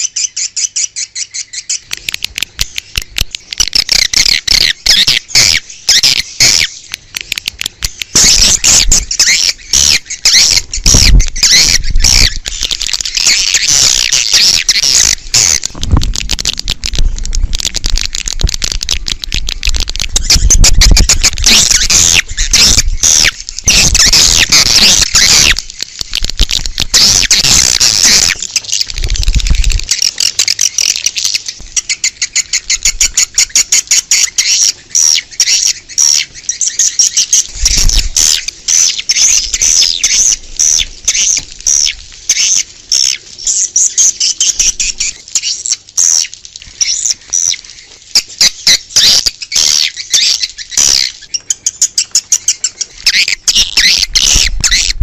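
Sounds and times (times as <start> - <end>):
swiftlet chirps and twitters: 2.7 - 6.8, 7.9 - 17.0, 19.1 - 47.6.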